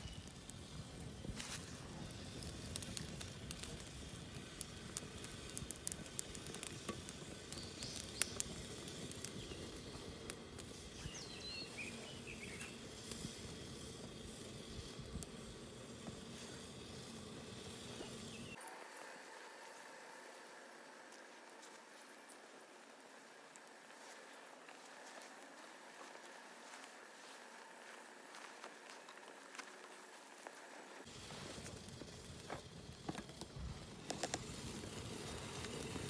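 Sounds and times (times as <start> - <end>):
wood fire crackling and popping: 0.0 - 18.6, 21.1 - 36.0
bird chirps: 11.0 - 12.8.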